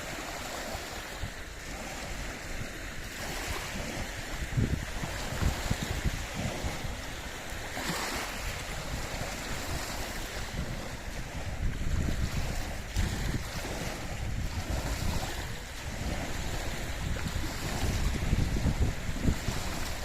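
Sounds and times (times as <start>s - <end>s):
waves washing against shore: 0.0s - 20.0s
wind rumbling on microphone: 0.0s - 20.0s.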